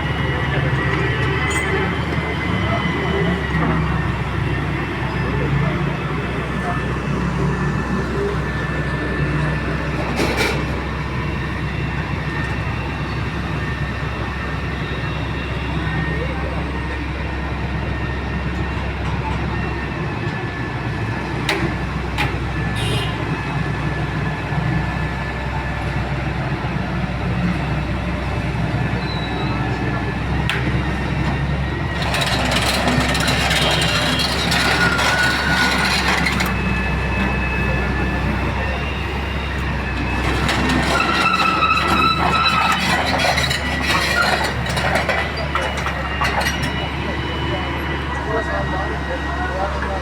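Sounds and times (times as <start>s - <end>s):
excavator diesel engine running: 0.0s - 50.0s.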